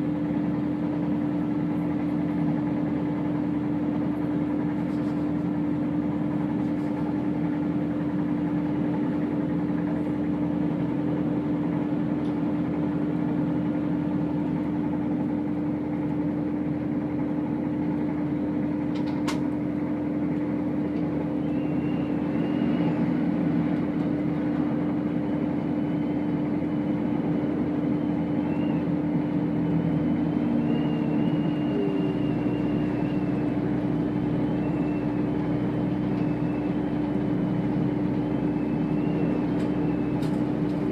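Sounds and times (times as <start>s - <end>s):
diesel train running: 0.0s - 40.9s
faint high squeals: 21.3s - 23.6s, 28.0s - 29.2s, 30.0s - 40.9s.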